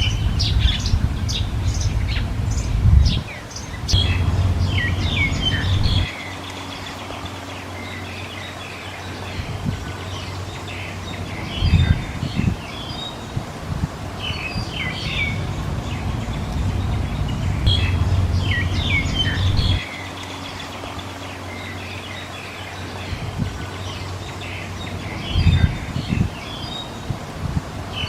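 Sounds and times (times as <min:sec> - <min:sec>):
low thumps: 0:00.0 - 0:06.1, 0:15.0 - 0:19.8
low rumble: 0:00.0 - 0:06.3, 0:09.4 - 0:19.9
small birds chirping: 0:00.0 - 0:28.0.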